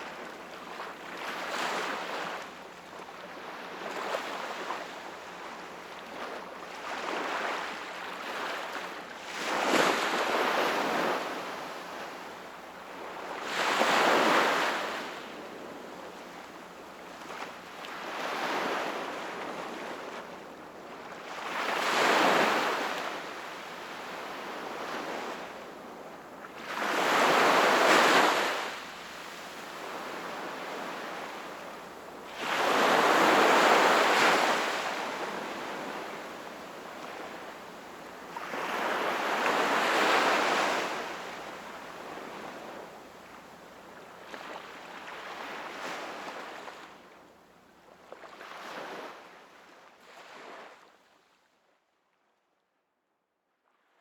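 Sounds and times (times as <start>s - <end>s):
sea waves breaking on shore: 26.6s - 43.0s.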